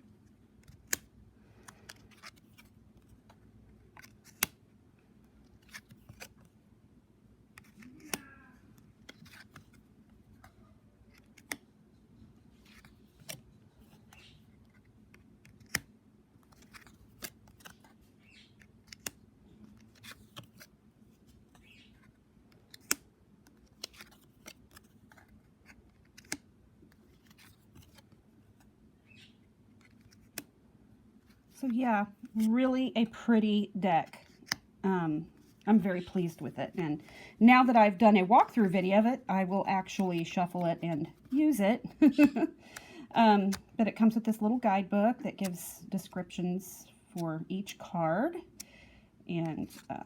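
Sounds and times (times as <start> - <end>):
cards clicking and tapping: 0.6 - 4.6, 7.6 - 11.7, 12.6 - 18.0, 18.6 - 20.7, 21.5 - 28.1, 29.8 - 30.5, 34.2 - 34.6
card stock rustling: 16.4 - 28.6, 29.8 - 30.4.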